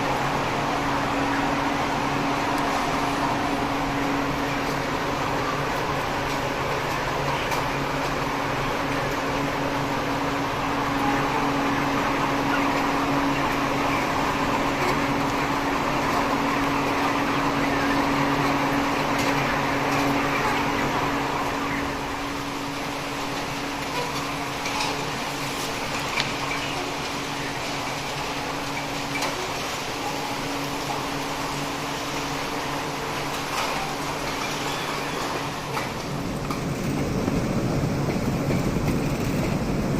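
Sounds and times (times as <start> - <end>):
machine hum: 0.0 - 39.9.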